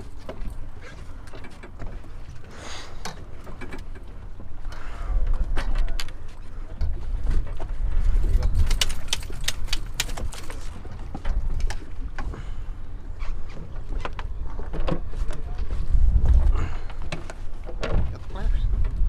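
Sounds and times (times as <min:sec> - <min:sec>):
sharp clicks: 0:08.6 - 0:10.5
steady low rumble: 0:15.4 - 0:19.0
knocking and clattering on boat deck: 0:16.3 - 0:19.0.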